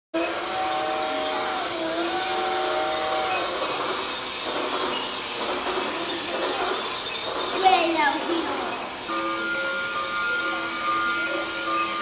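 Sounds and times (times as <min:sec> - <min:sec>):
multi-tone train whistle: 0:00.2 - 0:03.8, 0:09.1 - 0:12.0
toy train whirring and rattling: 0:00.2 - 0:12.0.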